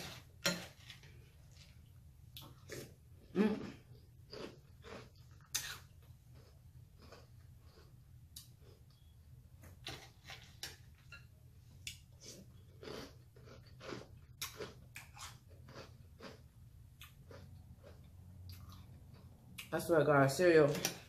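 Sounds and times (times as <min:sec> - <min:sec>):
chewing crunchy cereal: 0:00.0 - 0:09.1, 0:12.2 - 0:19.7.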